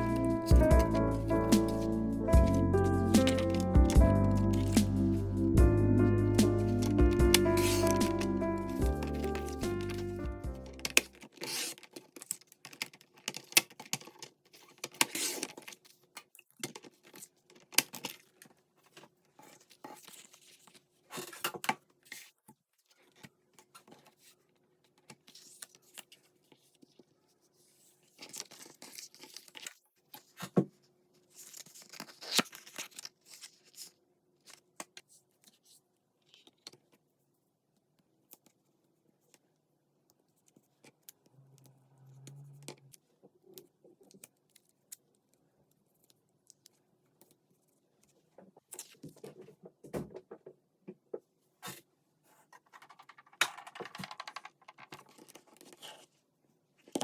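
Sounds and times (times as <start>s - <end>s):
paper rustling and tearing: 0.0s - 5.4s, 6.4s - 16.1s, 25.2s - 30.5s, 31.2s - 34.6s.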